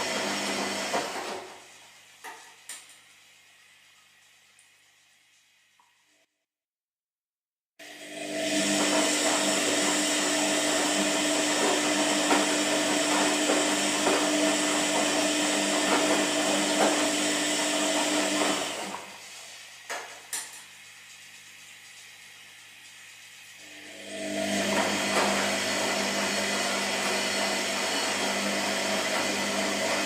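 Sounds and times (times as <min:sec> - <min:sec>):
washing machine motor whir: 0:00.0 - 0:02.4, 0:07.8 - 0:30.0.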